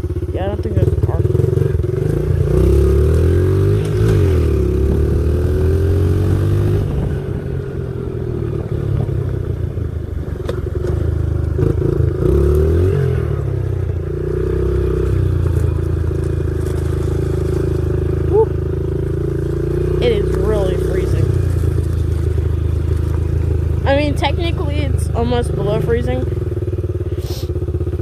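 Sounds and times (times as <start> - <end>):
small motorbike engine revving: 0.0 - 9.2, 10.4 - 28.0.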